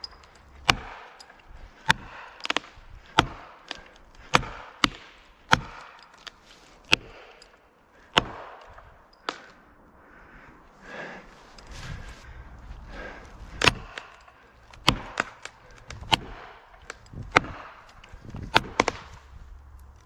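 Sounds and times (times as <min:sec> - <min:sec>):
wedges being hammered: 0:00.0 - 0:01.2, 0:01.8 - 0:06.0, 0:06.9 - 0:07.5, 0:08.1 - 0:09.5, 0:13.6 - 0:19.2.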